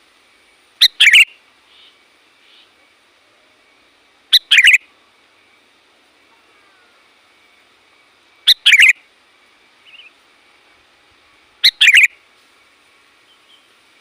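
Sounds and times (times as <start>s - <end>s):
bird bubbling call: 0.8s - 1.9s, 4.3s - 4.9s, 8.5s - 9.0s, 11.6s - 12.1s.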